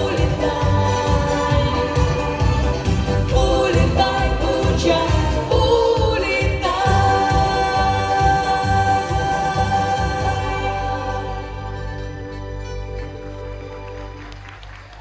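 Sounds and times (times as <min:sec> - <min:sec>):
backing track with steady beat: 0:00.0 - 0:11.5
man singing pop song: 0:00.0 - 0:11.8.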